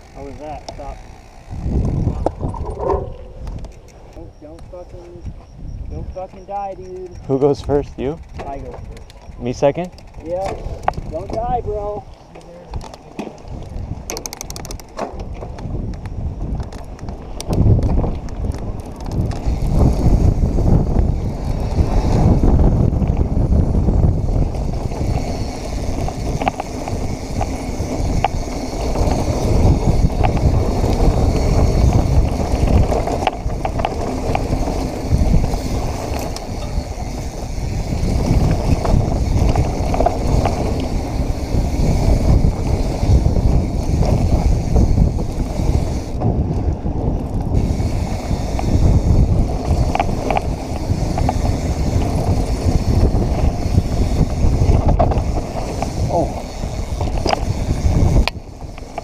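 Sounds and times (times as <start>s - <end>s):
bike clicks and rattles: 0.0s - 59.0s
bike tyre noise: 0.0s - 59.0s
wind on microphone: 0.0s - 59.0s.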